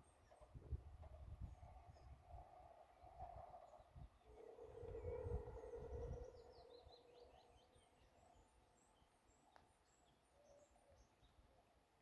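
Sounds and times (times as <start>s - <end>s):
birds chirping: 3.7s - 11.4s
faint click: 9.5s - 9.7s.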